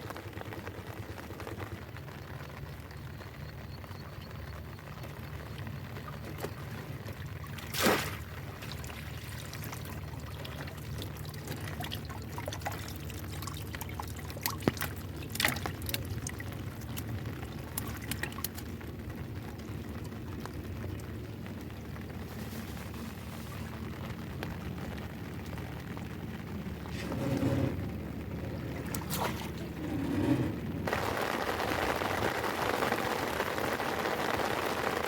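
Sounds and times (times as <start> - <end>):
steady low rumble: 0.0 - 34.9
water splashing and trickling: 0.1 - 31.3
water dripping: 1.4 - 26.8, 28.2 - 29.8.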